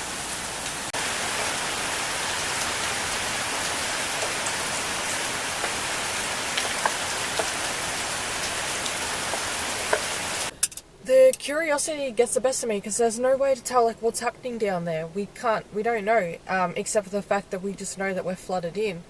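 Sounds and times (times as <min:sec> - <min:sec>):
heavy rain falling: 0:00.0 - 0:10.5.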